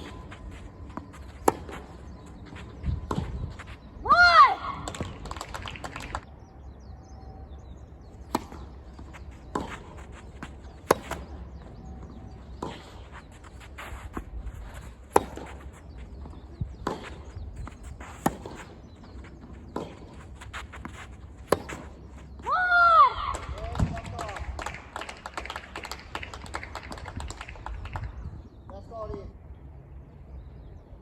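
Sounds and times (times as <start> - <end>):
racket striking tennis ball: 0.0 - 3.4, 8.3 - 11.6, 12.5 - 22.1.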